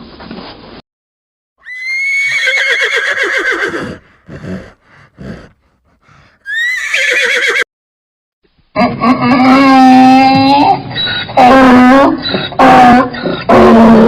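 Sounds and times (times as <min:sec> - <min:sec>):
horse whinnying: 0:01.6 - 0:05.5, 0:06.4 - 0:07.7.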